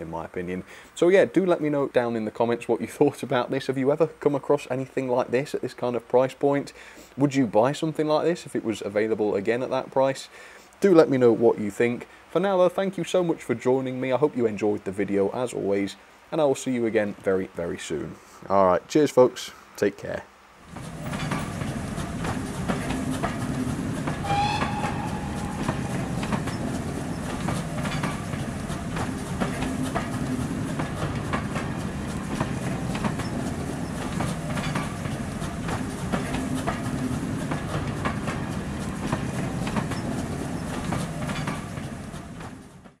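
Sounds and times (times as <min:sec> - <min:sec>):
railway carriages rumbling: 0:20.6 - 0:43.0
wheels clicking over rail joints: 0:20.6 - 0:43.0
high-pitched tone: 0:24.2 - 0:26.8.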